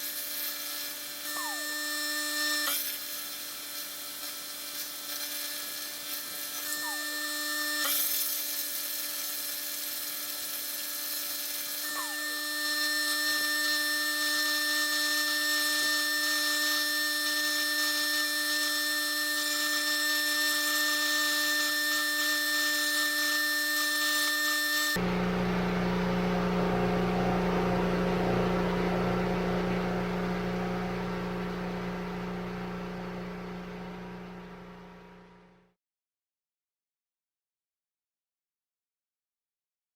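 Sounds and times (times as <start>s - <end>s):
power tool grinding metal: 0.0s - 25.1s
low steady hum: 25.0s - 35.6s.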